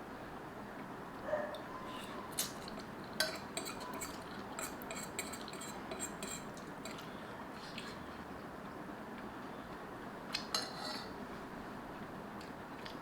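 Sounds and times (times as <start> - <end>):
utensil clinking against bowl: 2.4 - 7.1.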